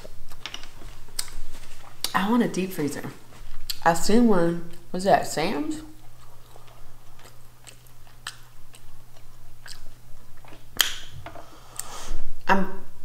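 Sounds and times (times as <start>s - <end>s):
person chewing: 0.0s - 2.2s, 3.2s - 3.9s, 5.9s - 12.2s.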